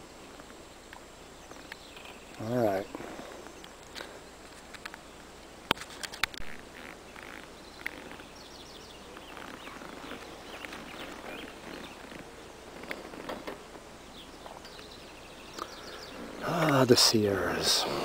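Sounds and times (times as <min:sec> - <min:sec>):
faint bird chirps: 0:00.0 - 0:05.3, 0:06.4 - 0:18.0
light rustling: 0:00.3 - 0:14.9
sharp clicks: 0:03.5 - 0:08.2.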